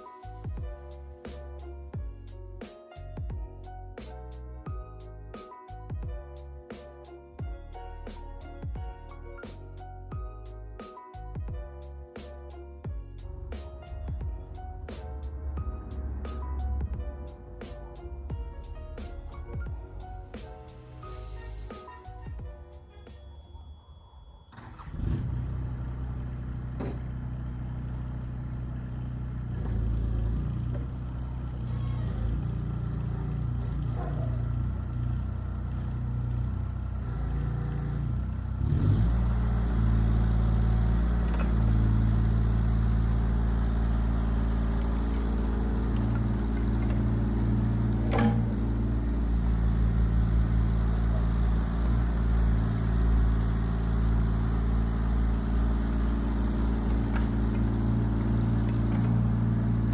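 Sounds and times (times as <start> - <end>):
diesel engine running: 13.2 - 22.9, 24.6 - 59.9.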